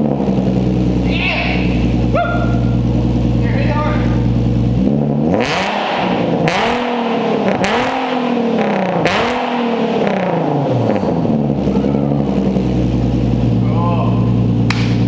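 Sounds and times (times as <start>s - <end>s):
car engine revving from idle: 0.0s - 15.0s.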